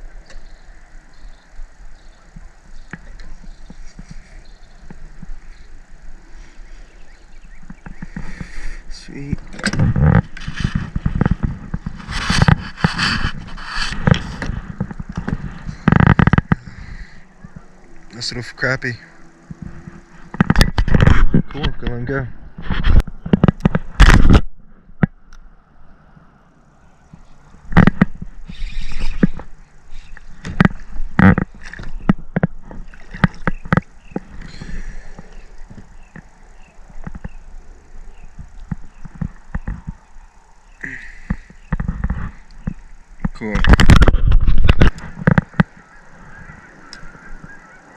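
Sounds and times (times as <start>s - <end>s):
knocks clicks and scrapes in kayak: 2.4s - 5.7s, 7.6s - 17.7s, 19.4s - 25.2s, 27.1s - 37.4s, 38.4s - 40.1s, 41.3s - 45.9s
water splashing: 30.1s - 35.8s
hollow knocks on a kayak: 30.4s - 34.5s.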